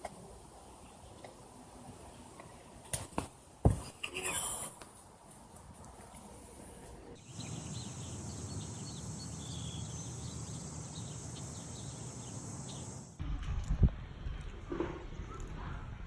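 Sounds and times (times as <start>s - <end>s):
bird chirps: 7.2s - 13.2s
insects chirring: 7.2s - 13.2s.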